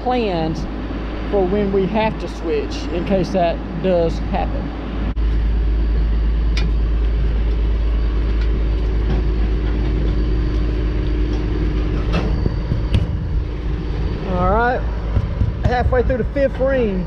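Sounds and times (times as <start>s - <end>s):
machinery rumbling: 0.0s - 17.0s
sharp knocks: 15.1s - 16.8s.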